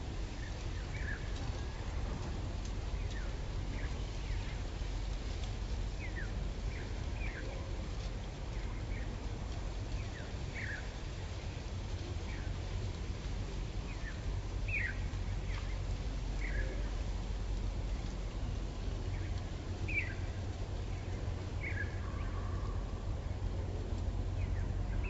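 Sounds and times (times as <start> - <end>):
steady low rumble: 0.0 - 25.0
small birds chirping: 0.4 - 1.7, 5.9 - 7.6, 8.5 - 11.5, 12.1 - 12.8, 13.8 - 17.1, 19.0 - 23.0, 24.3 - 25.0.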